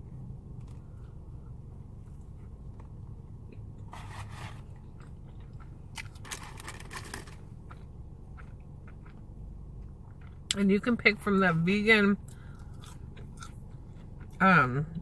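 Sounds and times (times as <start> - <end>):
crunchy chewing of food: 0.2 - 10.6, 12.2 - 15.0.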